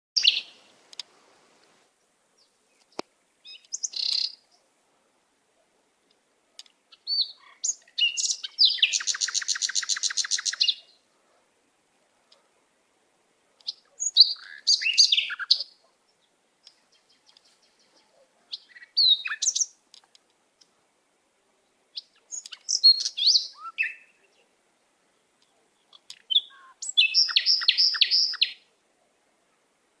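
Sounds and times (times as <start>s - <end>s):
birds singing high notes: 26.2s - 28.6s.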